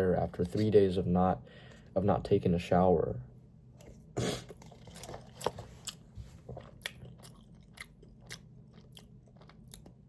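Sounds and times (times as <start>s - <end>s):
mouth chewing food: 4.4s - 10.0s.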